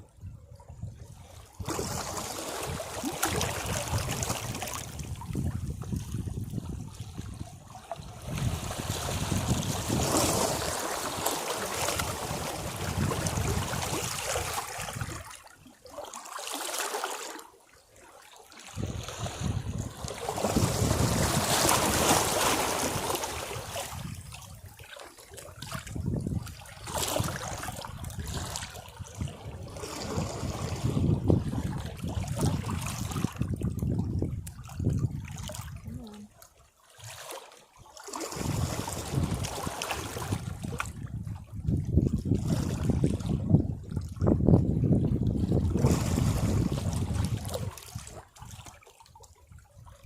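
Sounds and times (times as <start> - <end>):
sea waves washing against rocks: 8.1 - 15.3, 19.0 - 24.3, 38.2 - 41.0.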